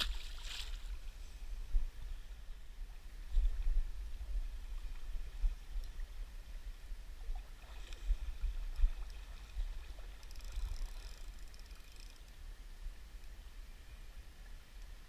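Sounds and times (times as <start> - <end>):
low river rumble: 0.0 - 15.0
flowing water: 2.3 - 12.4.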